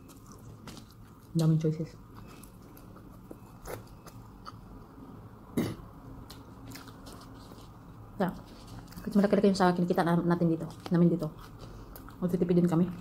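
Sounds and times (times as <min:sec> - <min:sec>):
person chewing: 0:00.0 - 0:05.0, 0:06.2 - 0:07.9, 0:10.8 - 0:12.2.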